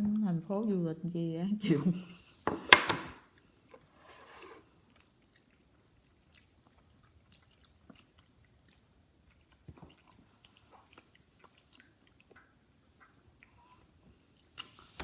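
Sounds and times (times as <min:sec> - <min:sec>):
person chewing with mouth clicks: 0:04.8 - 0:14.8.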